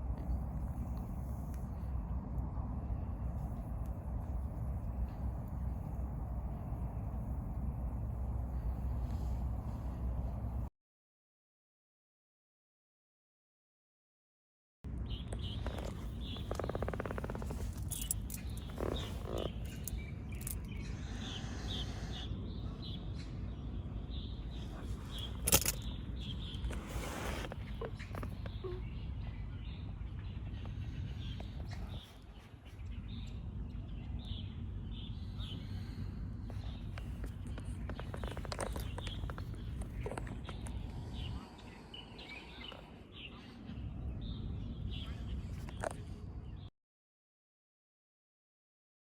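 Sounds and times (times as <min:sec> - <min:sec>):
steady low rumble: 0:00.0 - 0:10.7, 0:14.9 - 0:46.7
small birds chirping: 0:15.0 - 0:46.7.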